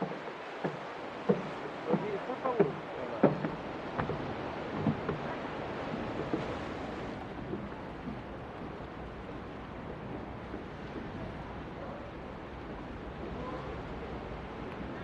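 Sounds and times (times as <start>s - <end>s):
sea waves washing ashore: 0.0s - 15.0s.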